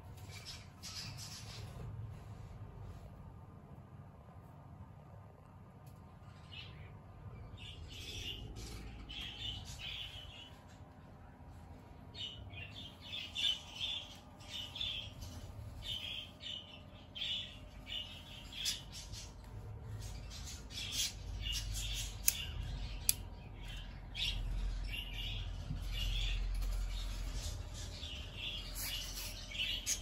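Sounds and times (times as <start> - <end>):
bird chirping and squawking: 23.7 - 30.0.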